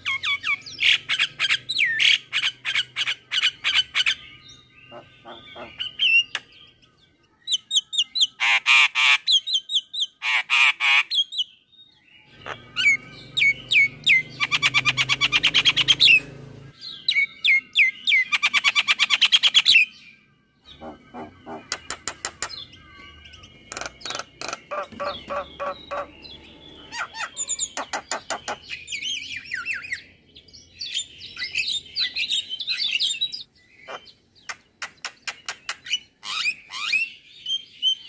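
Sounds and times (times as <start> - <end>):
myna singing and squawking: 0.0 - 6.5, 7.5 - 11.5, 12.3 - 16.3, 20.6 - 30.1, 30.9 - 37.2.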